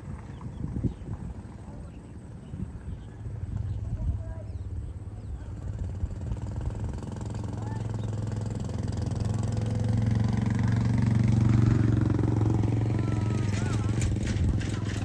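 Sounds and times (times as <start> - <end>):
jet engines humming: 10.4 - 15.0.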